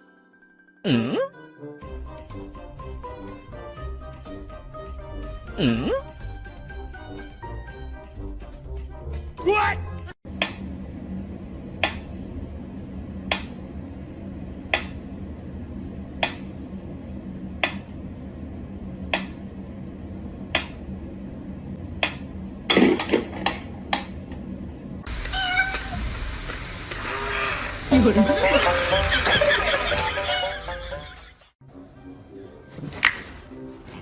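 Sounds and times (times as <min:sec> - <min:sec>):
steady low hum: 0:10.3 - 0:31.3.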